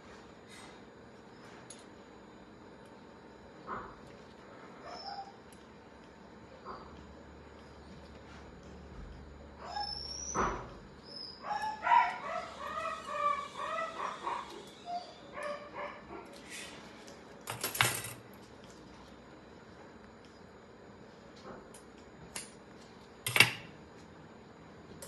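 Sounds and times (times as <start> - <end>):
dog crying: 9.6 - 16.3.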